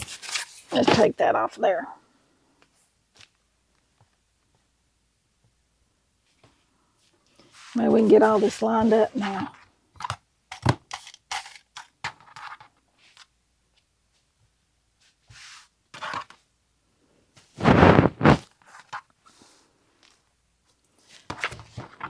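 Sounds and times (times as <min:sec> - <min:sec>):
fabric rustling scrape: 0:17.5 - 0:18.5.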